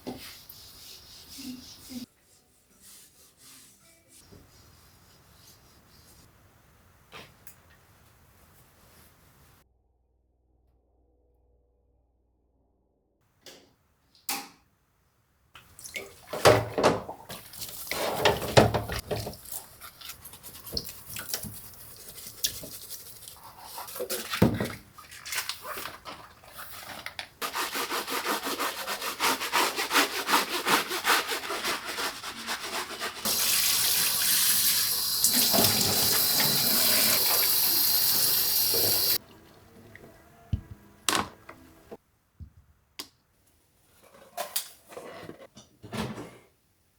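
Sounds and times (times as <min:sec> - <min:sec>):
water running from tap: 0:33.3 - 0:39.2.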